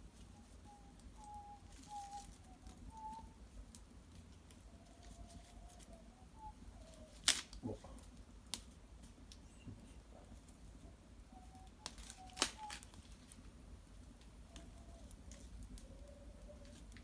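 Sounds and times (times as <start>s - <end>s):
wood fire crackling: 0.0s - 17.0s
thin wavering whistle: 0.3s - 3.4s, 4.8s - 7.2s.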